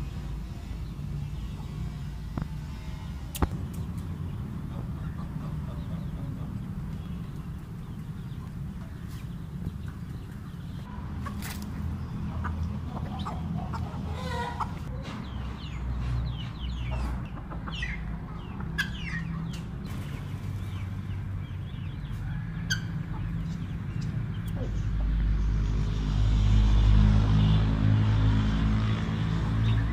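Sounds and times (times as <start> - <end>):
fowl clucking: 12.4 - 15.0.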